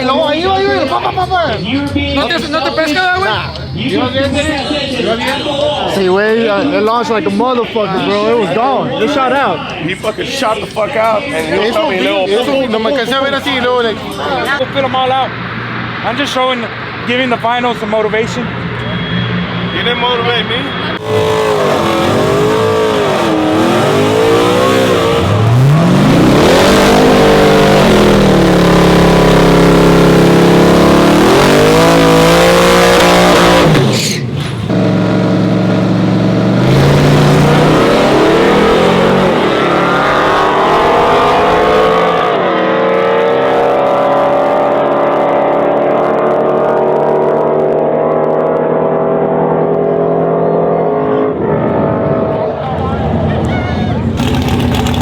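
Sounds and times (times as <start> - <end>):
truck engine revving hard: 15.3 - 55.0.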